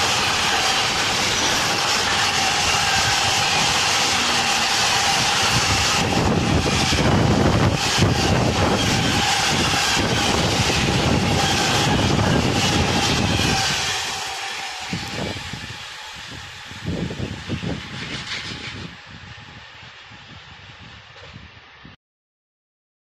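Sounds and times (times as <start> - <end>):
thin steady whine: 0.0 - 21.7
steel wheels rumbling on rail: 0.0 - 22.0.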